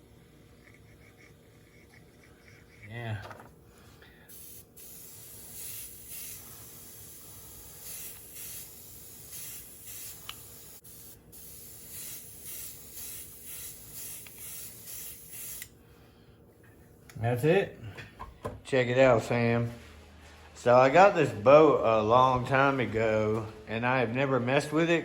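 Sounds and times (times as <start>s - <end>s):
airbrush hissing: 4.2s - 15.7s.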